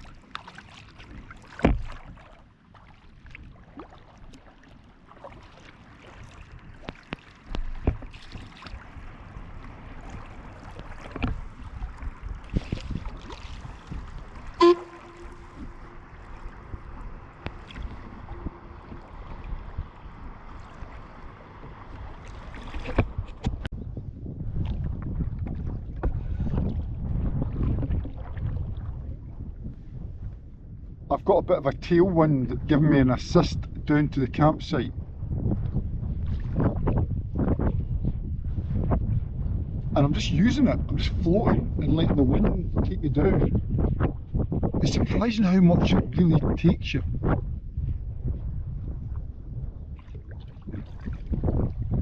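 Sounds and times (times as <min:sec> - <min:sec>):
water lapping around kayak: 0:00.0 - 0:52.0
knocks on kayak hull: 0:01.6 - 0:02.0
wind on microphone: 0:05.1 - 0:52.0.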